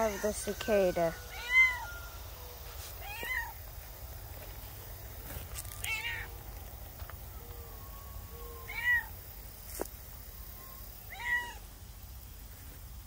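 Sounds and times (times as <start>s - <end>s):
cat meowing: 1.3s - 1.9s, 3.0s - 3.6s, 5.8s - 6.3s, 8.6s - 9.1s, 11.1s - 11.6s.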